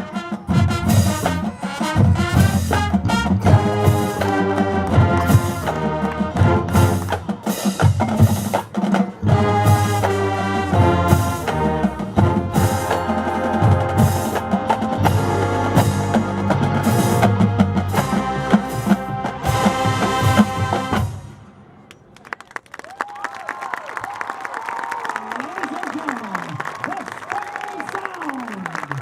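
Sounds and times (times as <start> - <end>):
brass chords: 0.0 - 8.5, 9.2 - 21.8
snare and bass drums: 0.4 - 21.3.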